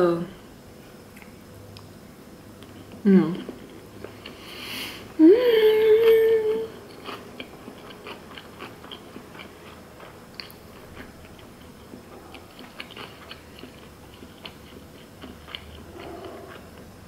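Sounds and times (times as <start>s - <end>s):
person humming: 5.2s - 6.8s
mouth chewing clicks and smacks: 6.9s - 16.9s.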